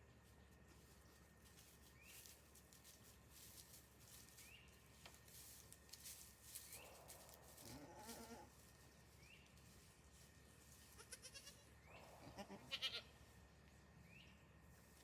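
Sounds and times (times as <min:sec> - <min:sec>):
faint goat bleating: 0:07.0 - 0:08.6, 0:10.8 - 0:13.2.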